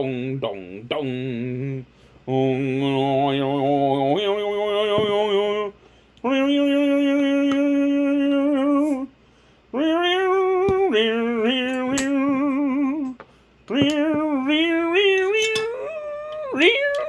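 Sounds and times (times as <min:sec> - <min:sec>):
person singing long held notes: 0:09.7 - 0:17.0.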